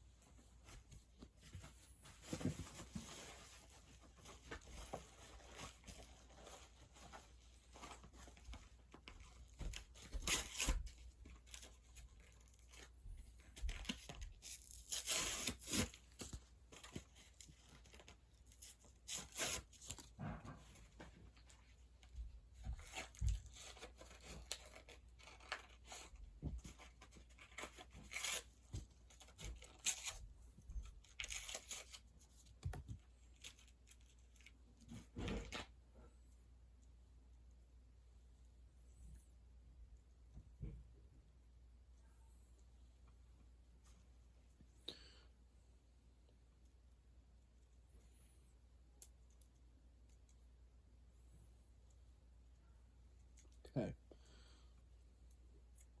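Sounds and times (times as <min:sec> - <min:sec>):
packaging ripping and crinkling: 0:10.0 - 0:12.8, 0:13.6 - 0:17.0.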